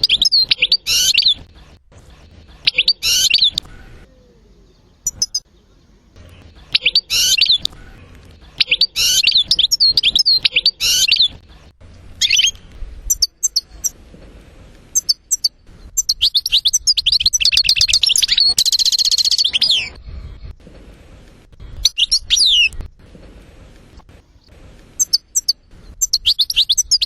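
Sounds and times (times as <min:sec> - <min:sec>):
goldfinch twittering chirps: 0:00.0 - 0:01.5, 0:02.5 - 0:04.0, 0:04.6 - 0:07.8, 0:08.4 - 0:13.9, 0:15.0 - 0:19.7, 0:25.0 - 0:27.0.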